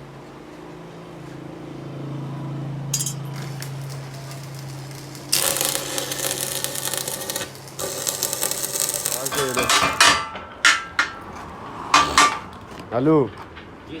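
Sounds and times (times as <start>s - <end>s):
machine hum: 2.1s - 12.8s
metallic clattering and scraping: 3.0s - 14.0s.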